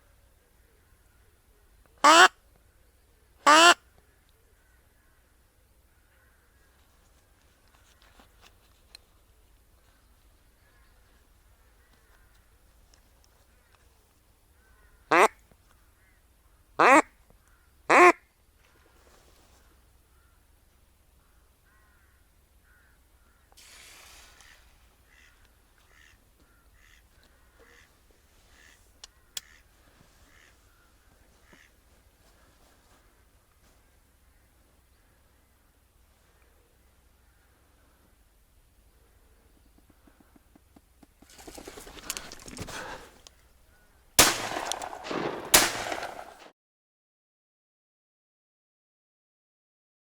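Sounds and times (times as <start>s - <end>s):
duck quacking: 2.0s - 2.3s, 3.4s - 3.8s, 15.1s - 15.3s, 16.8s - 17.1s, 17.9s - 18.2s, 25.1s - 26.2s, 26.8s - 27.0s, 29.4s - 30.6s
brief rustle: 6.8s - 9.2s, 41.2s - 43.4s
shotgun shots with echo: 44.2s - 46.5s.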